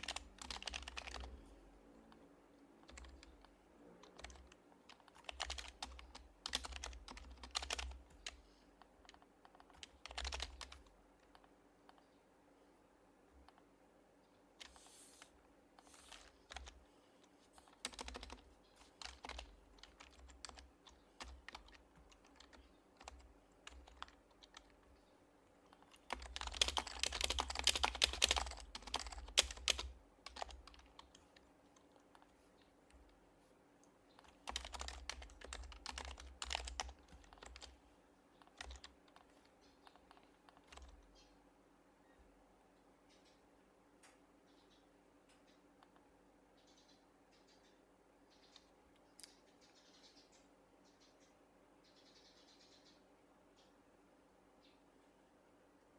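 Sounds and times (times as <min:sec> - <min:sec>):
quiet keyboard typing: 0:00.0 - 0:12.2, 0:13.2 - 0:41.3.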